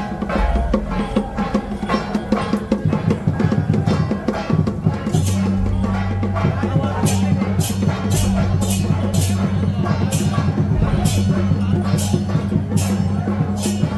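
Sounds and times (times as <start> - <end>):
drum and wood-block strikes: 0.0 - 13.9
loud clashing strokes: 0.0 - 13.9
steady low tone: 4.9 - 13.9.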